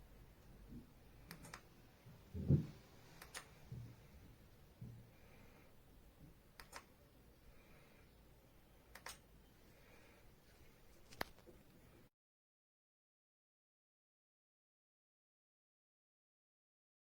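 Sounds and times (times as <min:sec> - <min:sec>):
sharp clicks: 0:01.2 - 0:01.7, 0:03.2 - 0:03.6, 0:06.6 - 0:06.9, 0:08.9 - 0:09.2
dull low thump: 0:02.3 - 0:02.8.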